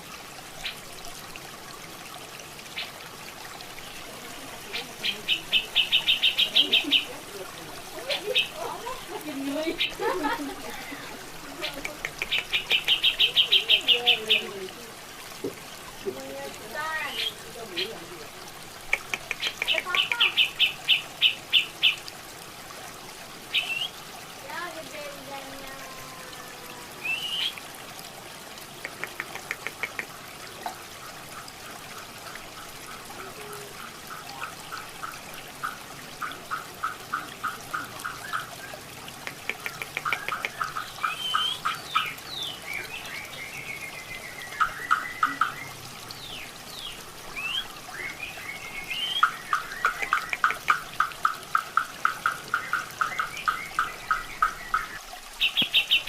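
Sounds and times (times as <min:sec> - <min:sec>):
running water: 0:00.0 - 0:56.0
bird singing rapid notes: 0:39.8 - 0:50.8.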